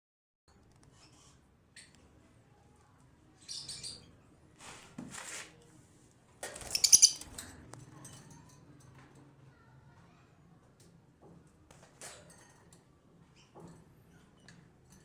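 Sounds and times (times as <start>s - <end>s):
lovebirds chirping: 6.6s - 7.3s.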